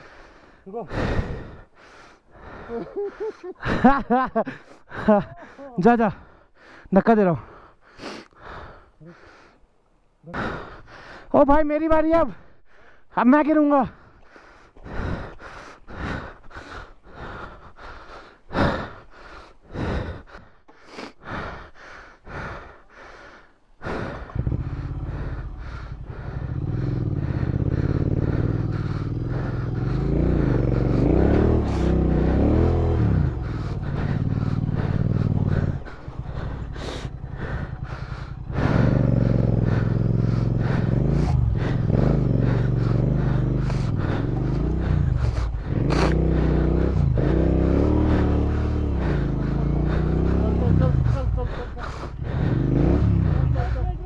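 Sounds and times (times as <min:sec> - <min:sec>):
motorcycle engine revving: 0:23.8 - 0:54.0.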